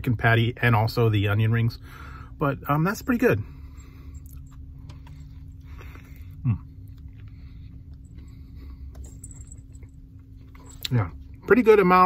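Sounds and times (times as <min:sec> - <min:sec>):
man chewing crispy food: 0:04.2 - 0:08.1
man humming mm: 0:06.4 - 0:06.8.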